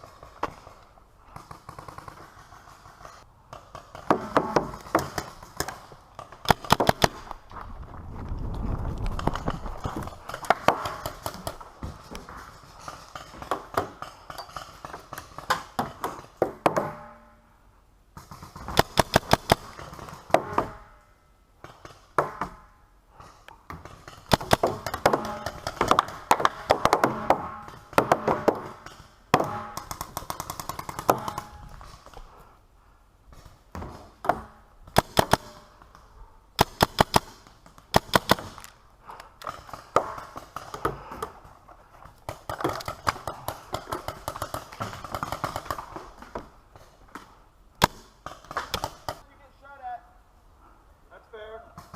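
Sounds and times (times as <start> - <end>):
paintball markers firing: 6.4 - 7.3, 18.2 - 20.5.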